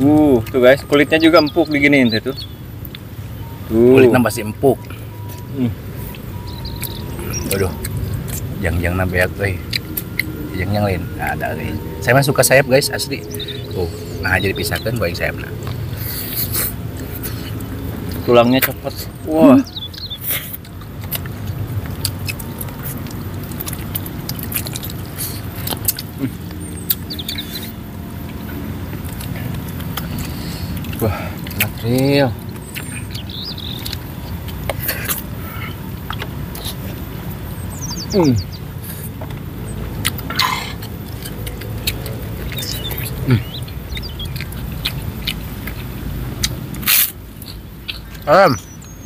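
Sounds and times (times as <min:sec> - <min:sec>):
wet chewing and smacking: 0:00.0 - 0:49.0
steady low hum: 0:01.6 - 0:49.0
low hum: 0:02.4 - 0:18.5.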